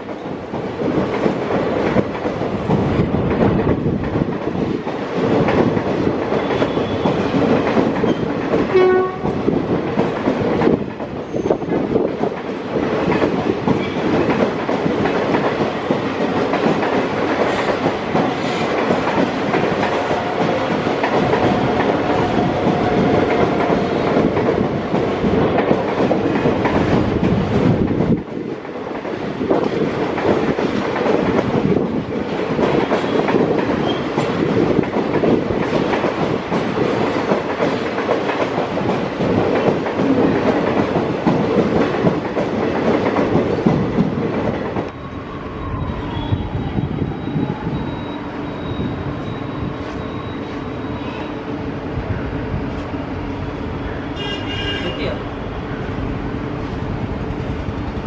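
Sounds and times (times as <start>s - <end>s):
train wheels clickety-clack: 0.0s - 45.0s
train horn toot: 6.5s - 7.2s, 8.7s - 9.4s, 54.2s - 55.2s.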